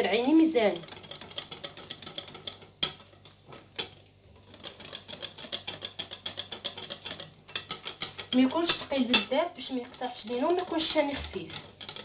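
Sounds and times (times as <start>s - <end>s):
whisk ticking against bowl: 0.0s - 12.0s.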